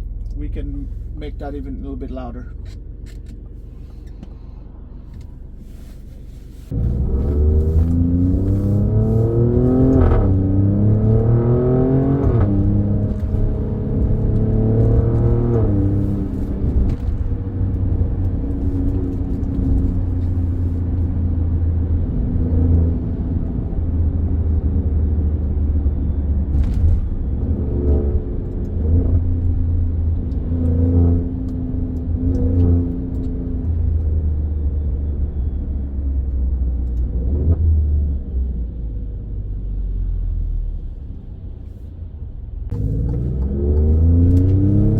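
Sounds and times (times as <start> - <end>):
car engine revving through gears: 6.7 - 35.4, 36.2 - 38.2, 42.7 - 44.9.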